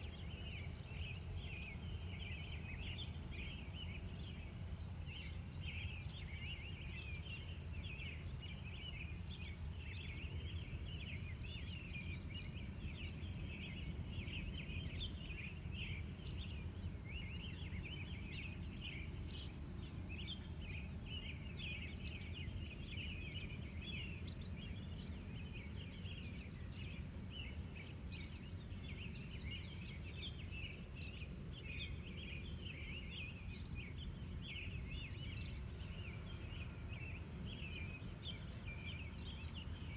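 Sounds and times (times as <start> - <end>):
crickets trilling: 0.0 - 39.9
bird calls: 28.2 - 39.6.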